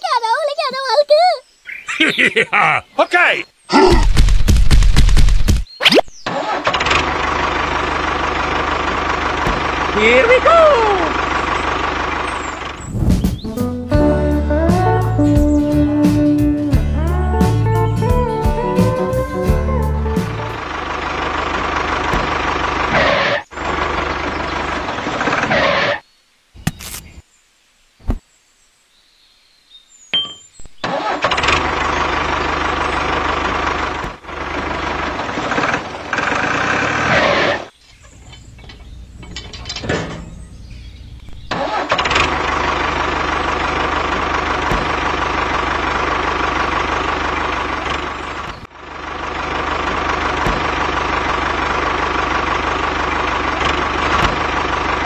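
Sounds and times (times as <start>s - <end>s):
toy tractor engine running: 6.3s - 12.8s.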